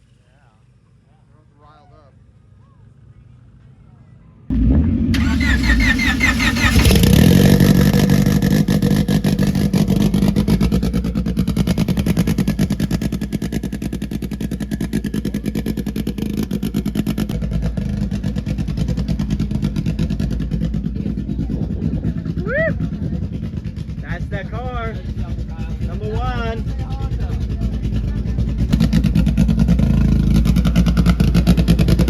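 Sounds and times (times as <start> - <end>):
car engine starting and revving: 4.5 - 20.5
car engine fast idle: 5.1 - 16.2.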